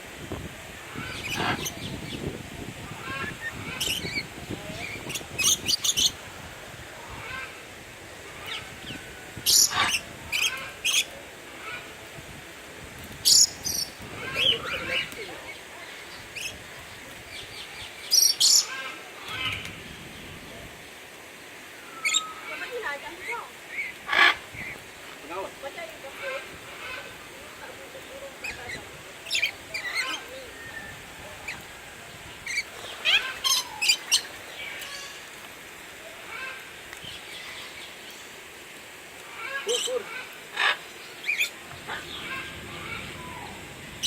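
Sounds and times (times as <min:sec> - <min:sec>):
small birds chirping: 0:00.9 - 0:06.2, 0:13.2 - 0:20.5, 0:28.0 - 0:35.3, 0:36.9 - 0:44.0.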